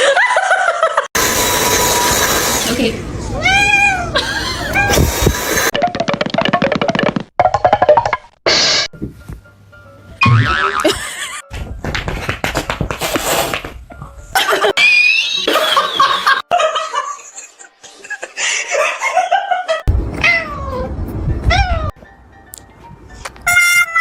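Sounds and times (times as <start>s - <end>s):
cats meowing and yowling: 3.2s - 5.2s, 20.2s - 20.9s, 21.5s - 22.0s.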